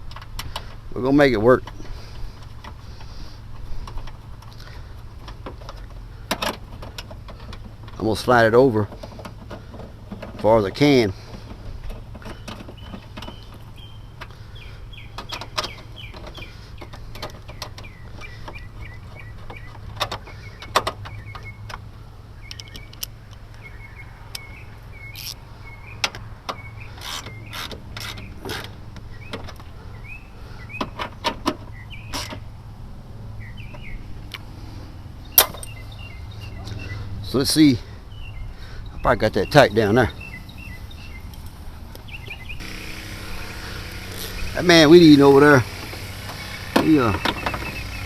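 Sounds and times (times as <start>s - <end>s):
small birds chirping: 0.6s - 32.6s, 33.2s - 48.0s
steady low hum: 40.1s - 48.0s.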